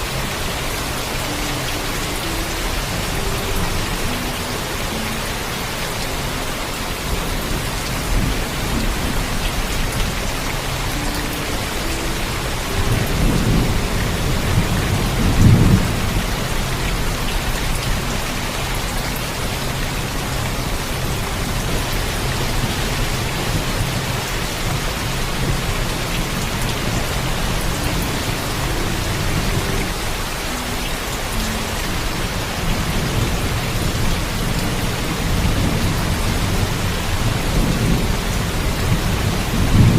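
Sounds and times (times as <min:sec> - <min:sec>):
heavy rainfall: 0:00.0 - 0:39.9.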